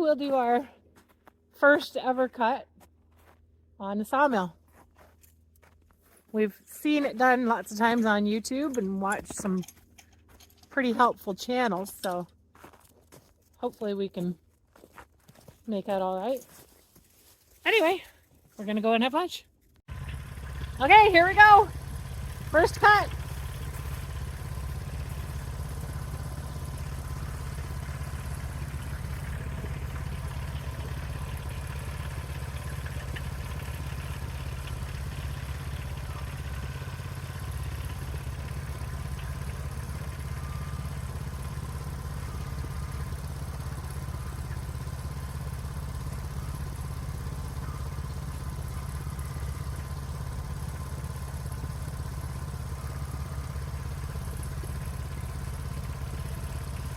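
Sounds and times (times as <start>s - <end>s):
small engine running steadily: 0.0s - 56.9s.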